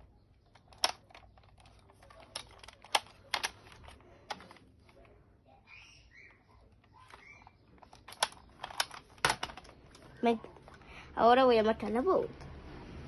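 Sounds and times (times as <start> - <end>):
plastic toy blaster clicks: 0.5 - 4.6, 7.1 - 9.7.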